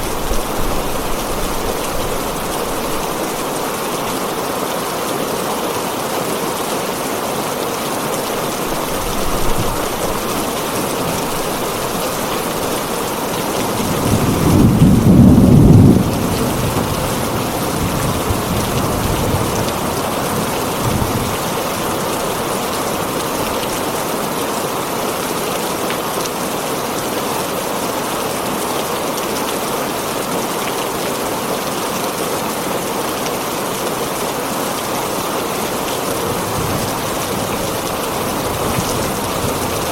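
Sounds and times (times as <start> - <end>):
heavy rain on a tin roof: 0.0 - 39.9
thunder rolling: 11.2 - 19.7.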